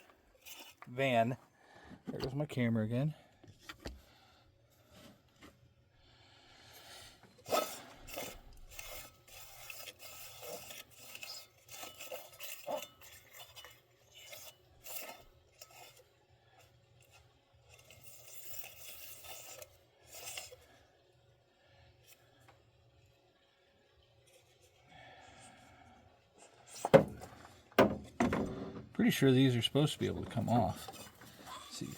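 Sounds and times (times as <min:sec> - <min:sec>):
scraping and rubbing: 0:00.0 - 0:01.2, 0:07.4 - 0:16.1, 0:17.0 - 0:20.7, 0:29.8 - 0:31.9
knock: 0:27.8 - 0:28.6.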